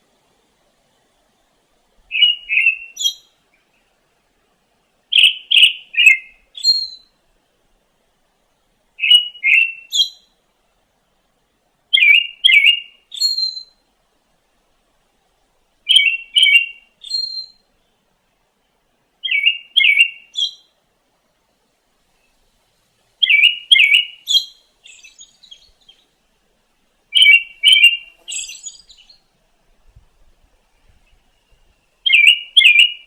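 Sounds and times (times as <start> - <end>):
songbird singing: 2.0 - 4.0, 5.1 - 7.2, 9.0 - 10.4, 11.9 - 13.9, 15.3 - 20.8, 22.1 - 26.3, 27.0 - 33.0
faint bird twittering: 2.1 - 3.9, 5.1 - 7.1, 9.0 - 10.4, 11.9 - 13.8, 15.9 - 18.0, 19.2 - 20.7, 23.2 - 26.2, 27.1 - 29.4, 30.2 - 33.0.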